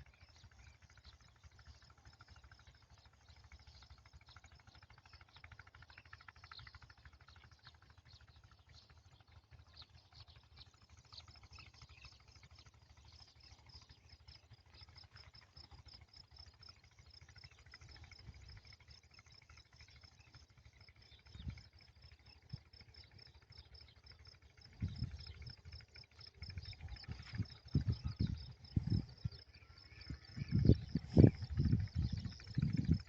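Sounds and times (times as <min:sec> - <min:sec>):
low rumble: 0:24.6 - 0:33.0.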